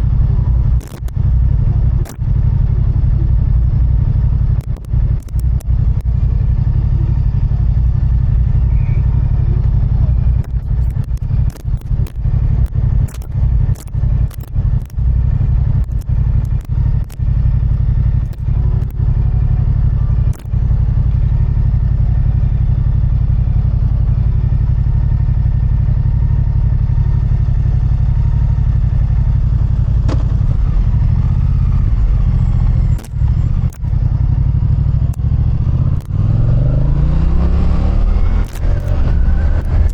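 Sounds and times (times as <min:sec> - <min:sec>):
motorcycle engine rumble: 0:00.0 - 0:39.9
sharp clicks and knocks: 0:00.7 - 0:02.5, 0:04.5 - 0:06.2, 0:10.2 - 0:19.2, 0:20.2 - 0:20.6, 0:30.0 - 0:30.5, 0:32.9 - 0:34.2, 0:35.0 - 0:36.2, 0:38.3 - 0:39.9.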